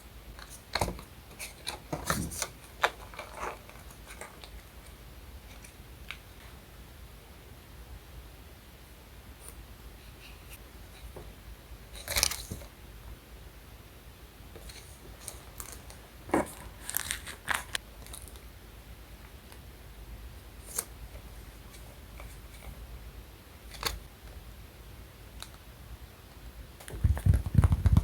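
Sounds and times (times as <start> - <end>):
paper rustling: 0.4 - 4.9.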